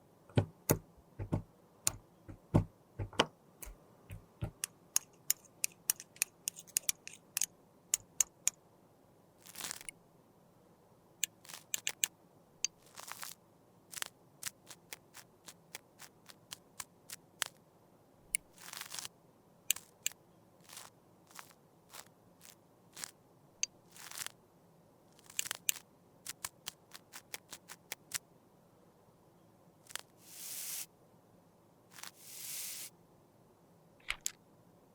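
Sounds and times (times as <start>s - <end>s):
sharp clicks and taps: 0.3s - 8.6s, 34.0s - 34.4s
crunching scrapes: 9.4s - 9.9s, 12.8s - 13.4s, 18.5s - 19.1s, 19.7s - 23.2s, 23.9s - 24.4s.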